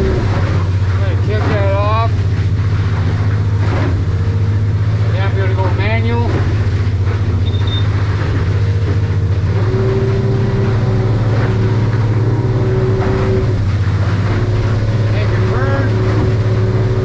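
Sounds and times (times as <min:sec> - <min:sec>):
outboard motor running: 0:00.0 - 0:17.0
steady higher tone: 0:07.4 - 0:08.0.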